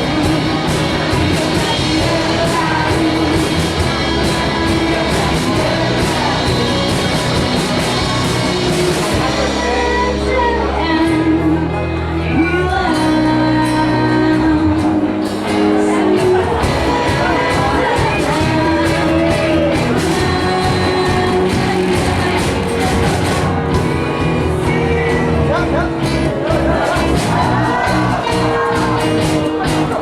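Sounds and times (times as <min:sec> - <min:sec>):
woman singing lead vocal: 0:00.0 - 0:07.5, 0:08.2 - 0:30.0
bass: 0:00.0 - 0:30.0
drums: 0:00.0 - 0:30.0
electric guitars: 0:00.0 - 0:30.0
keyboard: 0:00.0 - 0:30.0.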